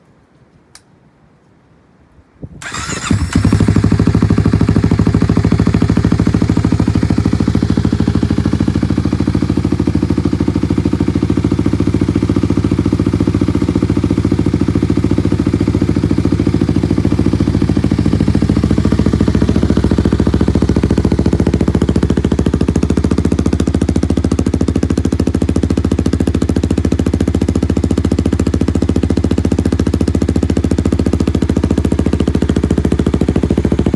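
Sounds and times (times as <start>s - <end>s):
motorcycle engine starting and idling: 2.6s - 33.9s.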